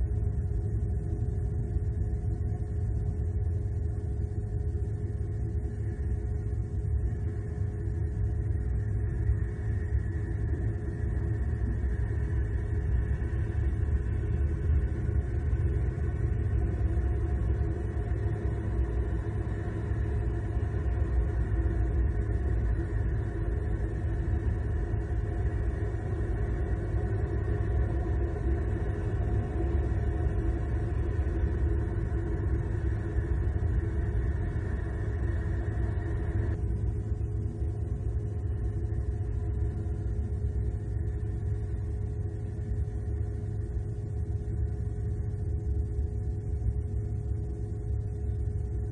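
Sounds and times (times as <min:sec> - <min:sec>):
faint steady hum: 0:00.0 - 0:48.9
low rumble: 0:06.8 - 0:39.6.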